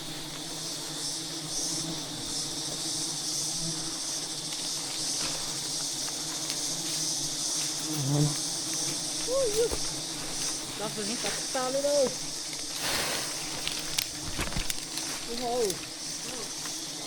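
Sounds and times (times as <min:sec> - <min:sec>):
bee swarm buzzing: 0:00.0 - 0:17.0
human voice: 0:09.3 - 0:09.8.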